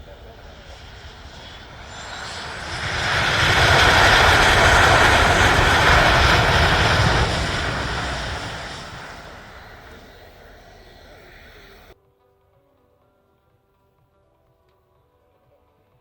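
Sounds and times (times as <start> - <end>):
aircraft flying past: 0.0 - 12.0.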